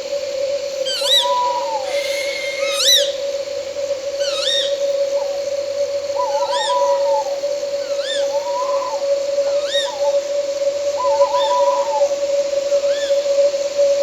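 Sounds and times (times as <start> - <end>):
night insects droning: 0.0 - 14.0
owl calling: 0.8 - 12.2, 12.8 - 13.3.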